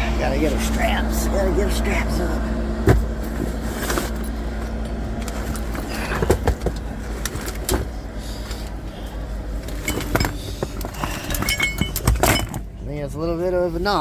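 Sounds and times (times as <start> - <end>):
vehicle engine rumbling: 0.0 - 14.0
straps clicking and knocking: 2.9 - 8.8, 9.6 - 12.7.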